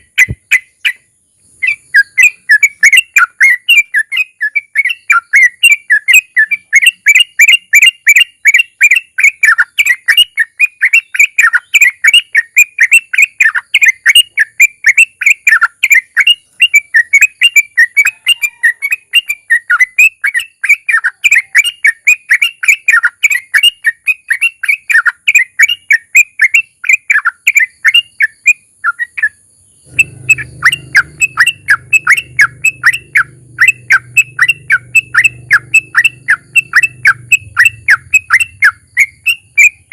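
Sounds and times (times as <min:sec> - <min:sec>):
bulbul rapid chirping song: 0:00.0 - 0:39.9
low hum: 0:29.9 - 0:39.5.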